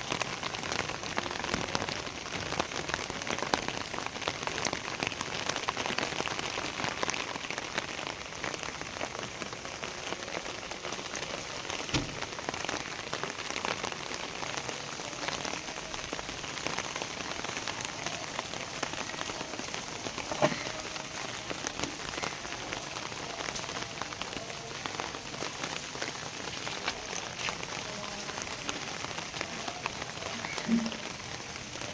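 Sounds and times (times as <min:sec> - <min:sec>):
rain falling: 0:00.0 - 0:31.9
loud knocks: 0:11.9 - 0:12.4.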